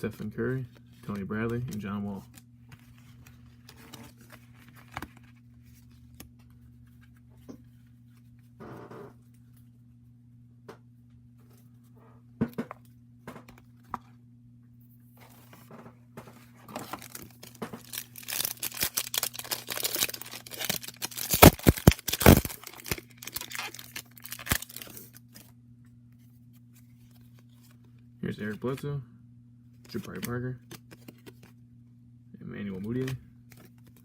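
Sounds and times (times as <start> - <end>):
wrapper tearing and crinkling: 16.7 - 25.4.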